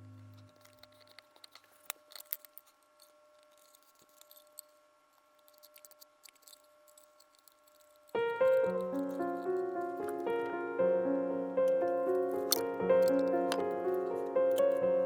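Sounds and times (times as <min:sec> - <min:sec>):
faint high hum: 0:00.0 - 0:15.0
background music: 0:08.2 - 0:15.0.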